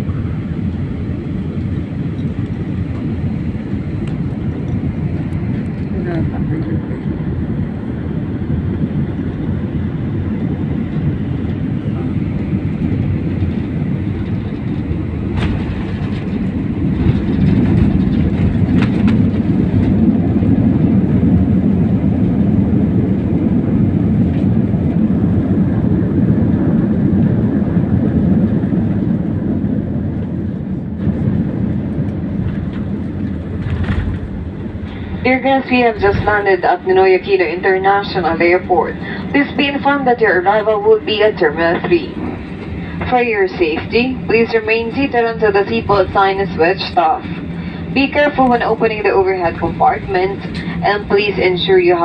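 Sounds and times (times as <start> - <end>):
jet cabin rumble: 0.0 - 52.0.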